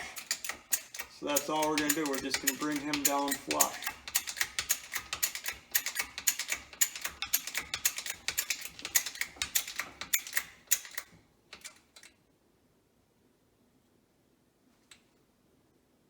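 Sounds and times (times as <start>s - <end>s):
metallic clicking of press: 0.0s - 12.1s.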